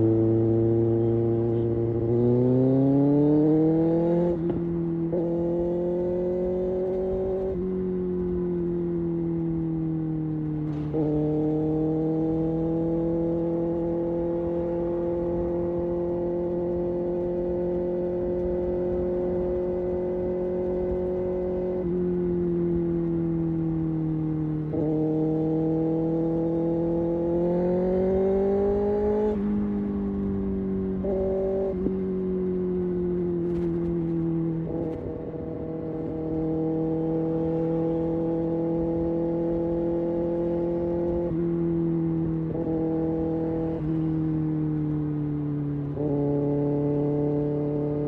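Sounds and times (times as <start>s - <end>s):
motorcycle engine cruising: 0.0s - 48.0s.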